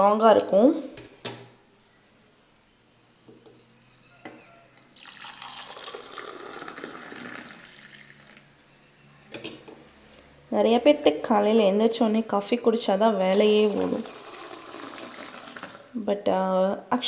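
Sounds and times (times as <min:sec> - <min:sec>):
milk pouring into cup: 0:04.8 - 0:08.5, 0:13.6 - 0:15.9.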